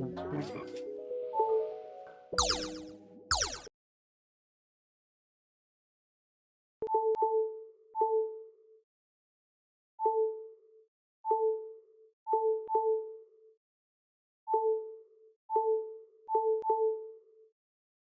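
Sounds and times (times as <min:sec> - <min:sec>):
electronic ding tones: 0:02.4 - 0:03.7.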